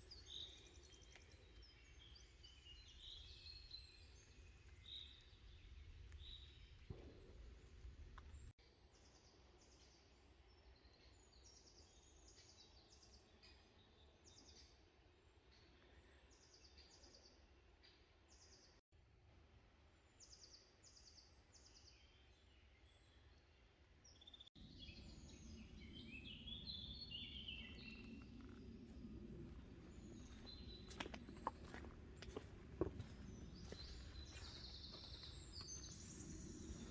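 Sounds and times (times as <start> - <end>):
bird warbling song: 24.1 - 36.9
low outdoor hum: 24.6 - 36.9.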